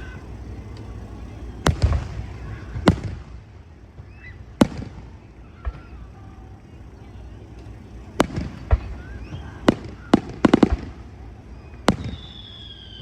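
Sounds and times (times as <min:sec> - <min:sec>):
firework booms: 0:00.0 - 0:06.1, 0:08.1 - 0:12.8.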